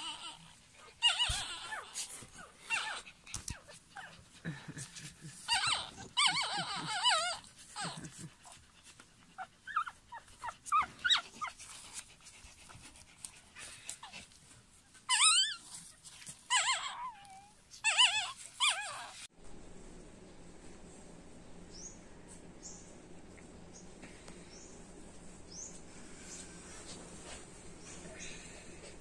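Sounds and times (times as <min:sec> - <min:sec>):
puppies whimpering and squealing: 0:00.0 - 0:04.3, 0:05.4 - 0:08.7, 0:09.3 - 0:11.8, 0:13.9 - 0:19.3.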